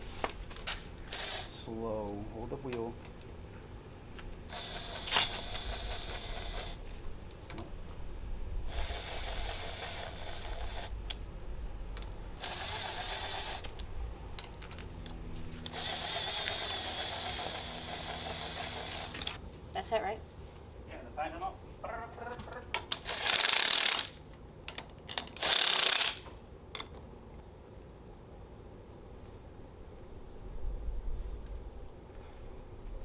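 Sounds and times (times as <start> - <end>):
power tool running down bolts: 1.1 - 1.6, 4.4 - 6.8, 8.6 - 10.9, 12.4 - 13.8, 15.6 - 19.4, 23.0 - 24.2, 25.4 - 26.2
mechanical ratcheting rattle: 4.5 - 6.8, 8.6 - 10.9, 12.4 - 13.8, 15.7 - 19.4, 22.9 - 24.2, 25.2 - 26.2.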